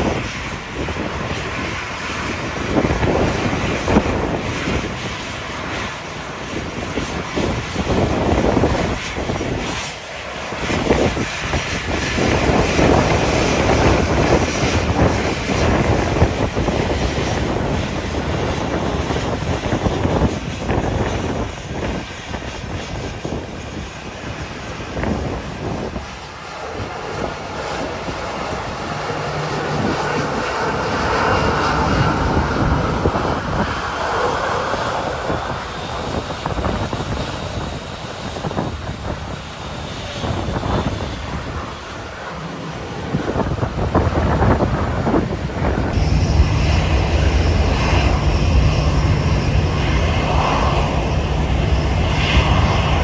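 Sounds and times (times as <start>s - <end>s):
aircraft engines running: 0.0s - 53.0s
wind buffeting microphone: 0.0s - 53.0s
rising engine whine: 10.6s - 38.9s, 45.8s - 53.0s.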